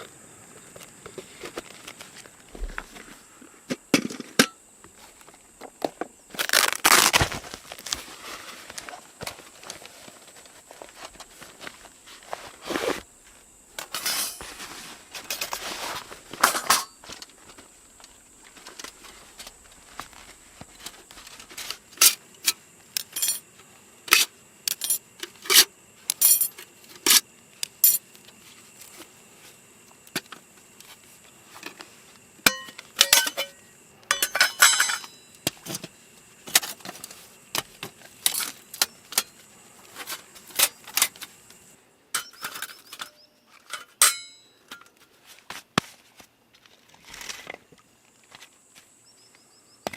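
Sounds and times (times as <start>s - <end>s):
metal and glass clinking: 23.1s - 23.4s, 32.5s - 35.2s, 42.2s - 44.5s.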